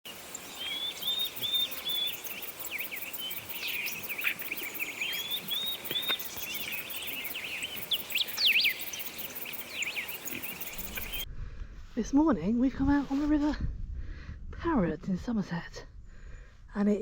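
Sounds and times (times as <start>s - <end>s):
birds singing: 0.1s - 11.2s.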